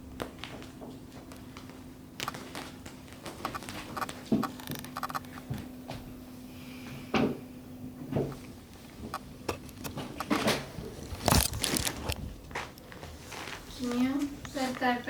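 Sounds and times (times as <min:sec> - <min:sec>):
kittens scuffing and tapping: 0:08.0 - 0:15.0.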